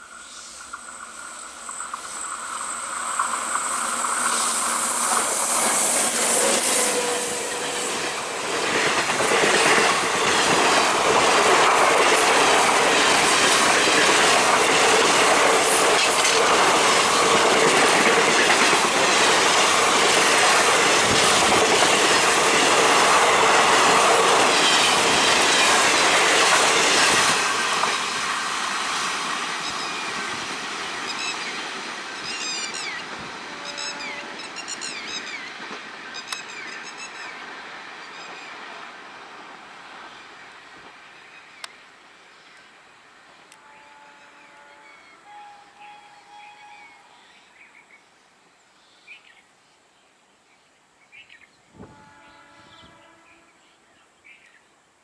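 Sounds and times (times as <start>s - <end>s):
train coaches rushing past: 0.0s - 41.1s
outdoor noise: 0.0s - 55.0s.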